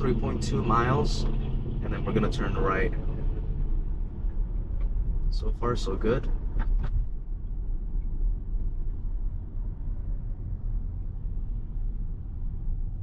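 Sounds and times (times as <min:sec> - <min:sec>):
road and tyre rumble: 0:00.0 - 0:13.0.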